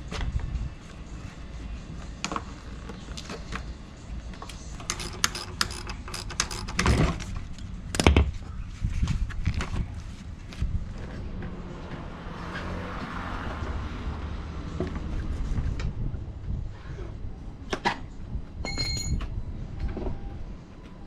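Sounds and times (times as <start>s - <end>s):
metal tools clinking and scraping: 4.8s - 7.4s.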